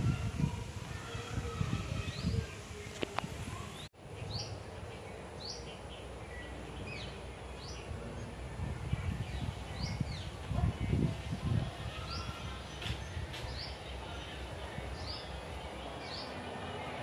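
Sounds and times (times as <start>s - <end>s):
bird chirping: 3.6s - 11.3s.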